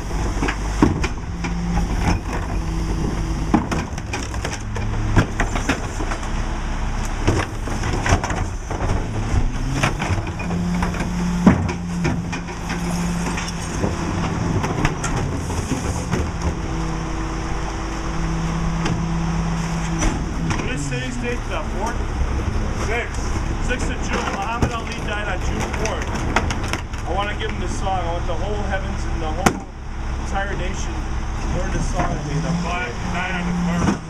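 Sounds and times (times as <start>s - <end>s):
trash cracking and snapping: 0.0s - 6.4s, 7.0s - 17.0s, 23.9s - 27.6s
hum: 0.0s - 25.0s
diesel truck engine running: 0.0s - 34.0s.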